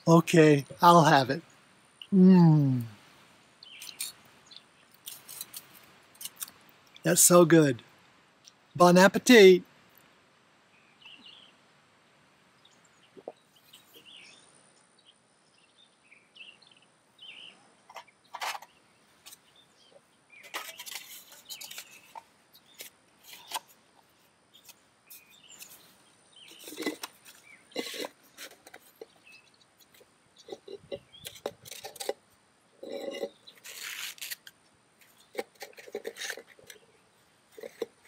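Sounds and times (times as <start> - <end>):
faint bird chirps: 10.7 - 11.6, 12.6 - 23.6
utensils scraping a pot: 26.5 - 29.2, 30.4 - 32.2, 32.8 - 34.4, 35.3 - 36.8, 37.5 - 38.0.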